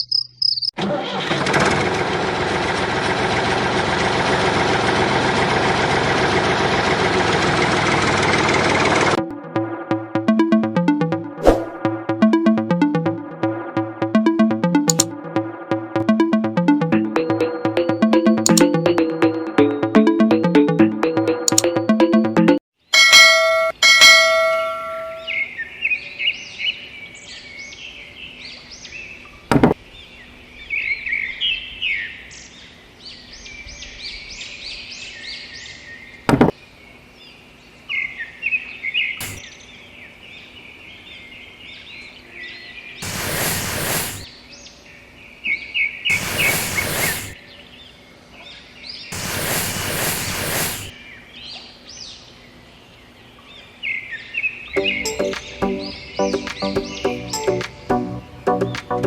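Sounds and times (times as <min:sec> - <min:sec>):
birds chirping and twittering: 0:00.0 - 0:00.8, 0:25.1 - 0:59.0
sharp clicks: 0:14.7 - 0:15.2, 0:18.4 - 0:18.8, 0:21.4 - 0:21.8
loud rushing bursts of noise: 0:43.0 - 0:44.3, 0:46.1 - 0:47.4, 0:49.2 - 0:50.9.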